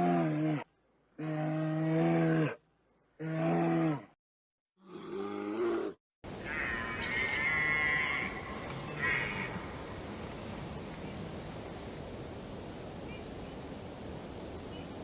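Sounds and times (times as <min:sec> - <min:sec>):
background noise: 0:00.0 - 0:04.2, 0:04.8 - 0:15.0
higher-pitched animal call: 0:05.0 - 0:09.7.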